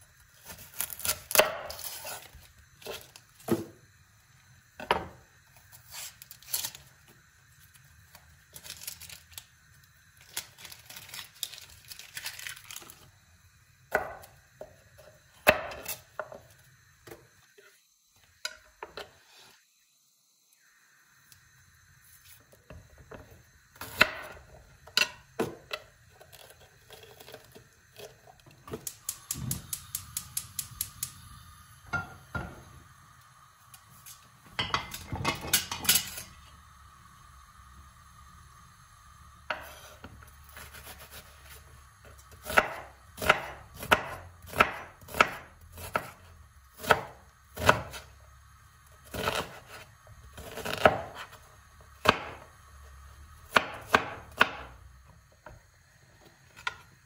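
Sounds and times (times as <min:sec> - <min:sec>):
knife chopping on cutting board: 0:01.0 - 0:02.2, 0:42.4 - 0:46.2, 0:50.4 - 0:51.2, 0:53.5 - 0:54.7.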